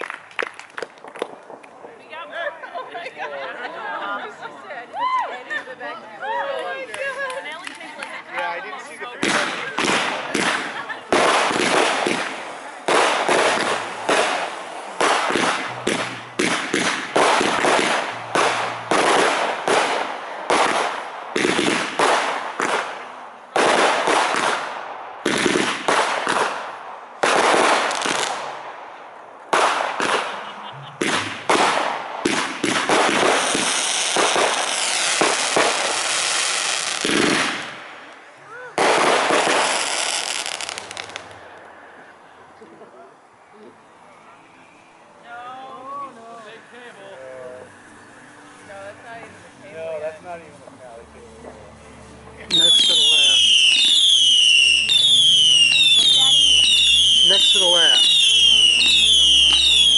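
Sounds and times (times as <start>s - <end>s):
fireworks crackling: 0.0s - 2.7s, 6.6s - 42.4s, 45.7s - 59.9s
fireworks shells bursting: 9.2s - 28.5s, 29.5s - 38.2s, 52.5s - 59.9s.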